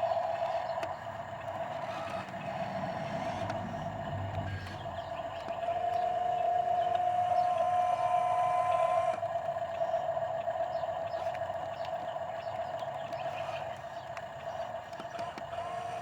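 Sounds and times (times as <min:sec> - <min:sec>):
steady high whine: 0:00.0 - 0:10.8
heavy diesel machinery running: 0:00.0 - 0:11.8.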